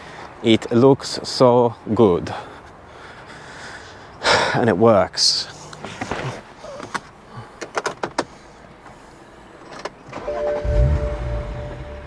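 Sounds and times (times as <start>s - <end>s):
car engine starting and idling: 6.8s - 12.0s
dashboard warning chime: 10.2s - 12.0s.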